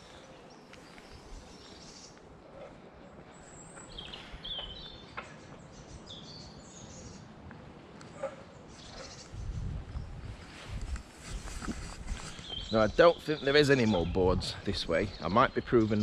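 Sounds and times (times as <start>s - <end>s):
faint outdoor background noise: 0.0s - 16.0s
small birds chirping and singing: 0.0s - 16.0s.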